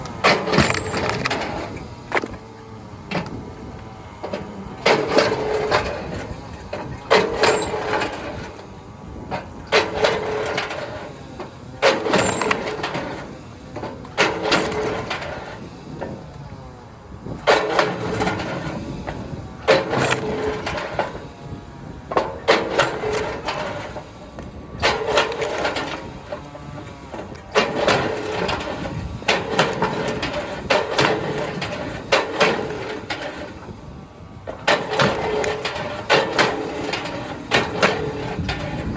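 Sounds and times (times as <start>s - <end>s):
log splitter running: 0.0s - 38.9s
log splitter splitting wood: 0.0s - 38.9s.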